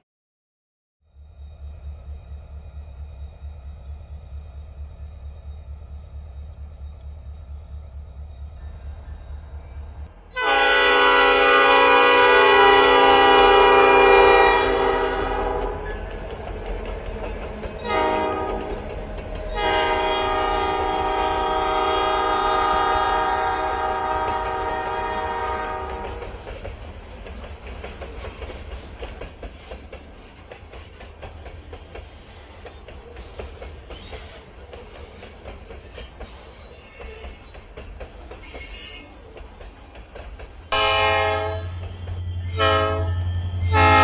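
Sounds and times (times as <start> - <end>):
train rumbling: 1.1 - 44.0
locomotive air horn: 10.3 - 16.0, 17.8 - 18.8, 19.5 - 26.3, 40.7 - 41.8, 42.4 - 44.0
wheels clicking over rail joints: 15.3 - 21.9, 22.7 - 42.4.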